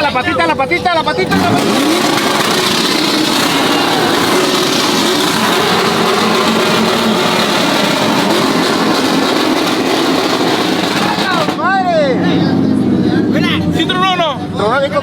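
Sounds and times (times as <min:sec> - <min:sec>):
engine running at high revs: 0:01.3 - 0:11.6
heavy rushing noise: 0:01.3 - 0:14.0.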